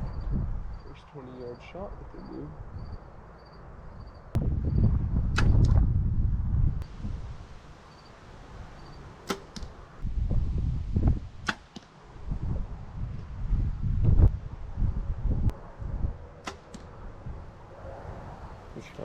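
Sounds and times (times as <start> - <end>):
wind rumbling on microphone: 0.0 - 19.0
arrows shot and hitting target: 5.3 - 5.8, 9.2 - 9.8, 11.4 - 12.0, 16.4 - 16.9.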